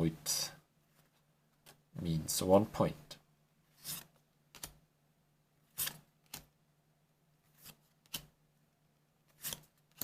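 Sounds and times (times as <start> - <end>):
cards sliding and flipping: 3.7 - 4.8, 5.7 - 6.5, 7.4 - 8.4, 9.2 - 10.0.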